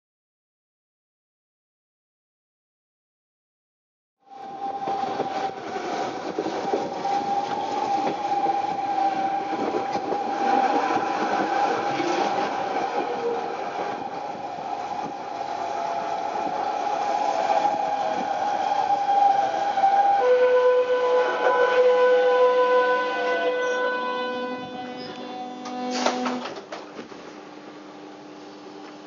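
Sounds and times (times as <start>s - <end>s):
wheels rumbling on rails: 4.3s - 20.0s
train motor whine: 4.3s - 26.8s.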